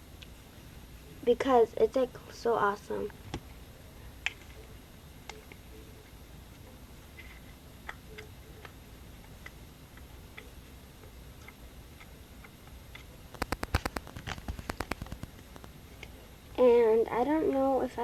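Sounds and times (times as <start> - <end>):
quick run of sharp clicks: 13.3 - 15.8.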